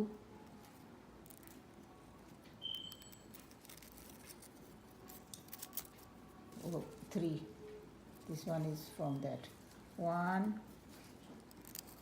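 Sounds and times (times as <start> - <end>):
brief high squeak: 2.6 - 3.3.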